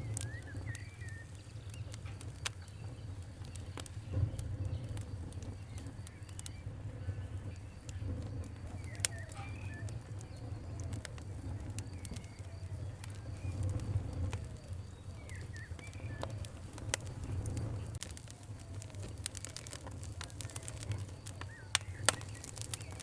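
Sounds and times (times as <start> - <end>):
wood fire crackling: 0.0 - 23.0
faint bird calls: 4.9 - 17.1, 17.7 - 23.0.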